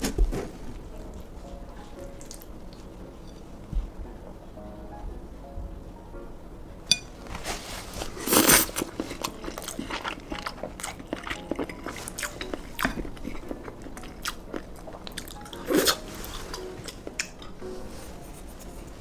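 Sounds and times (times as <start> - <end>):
person chewing crunchy food: 8.0 - 17.6.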